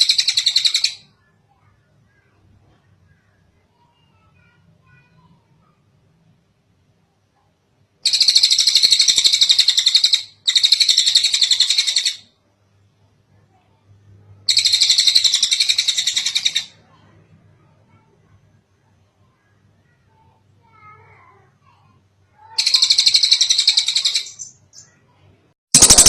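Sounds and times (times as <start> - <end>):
bird singing high rapid trills: 0.0 - 1.0, 8.0 - 12.3, 14.5 - 16.7, 22.5 - 25.0, 25.7 - 26.0.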